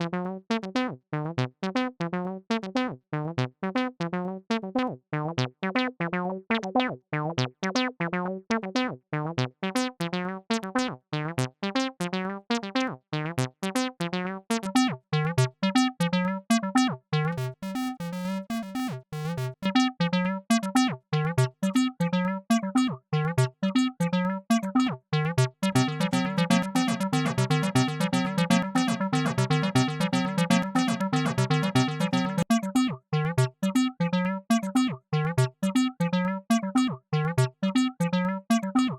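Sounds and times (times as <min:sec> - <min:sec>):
bass synthesizer sequence: 0:16.8 - 0:38.9.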